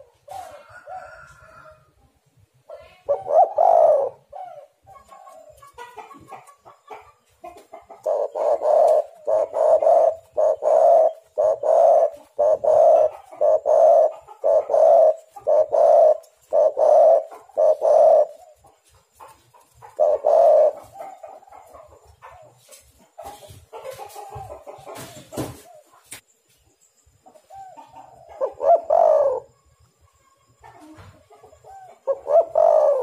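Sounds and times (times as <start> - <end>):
dove cooing: 0.0 - 1.2, 2.8 - 18.9, 19.6 - 22.6, 27.4 - 29.6, 30.5 - 33.0.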